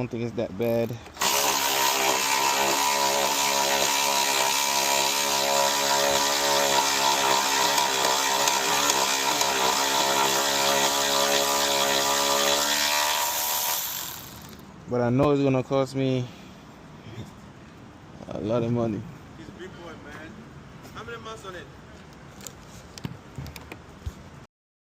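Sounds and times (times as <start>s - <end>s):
small motor buzzing drone: 1.2s - 14.6s.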